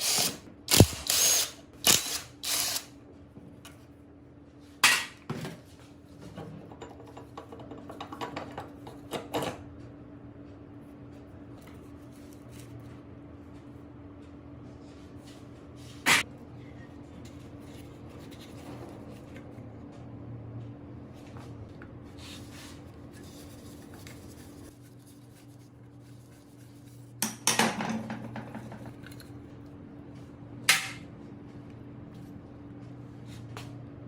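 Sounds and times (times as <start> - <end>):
steady low hum: 8.4 - 34.0.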